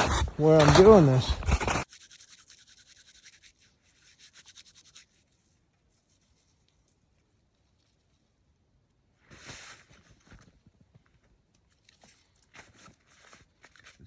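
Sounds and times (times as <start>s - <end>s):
faint quick scratching: 0.0s - 8.0s.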